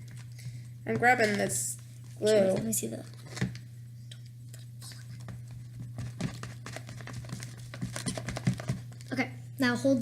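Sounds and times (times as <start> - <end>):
steady low hum: 0.0 - 10.0
stick stirring slime in bowl: 4.9 - 9.0.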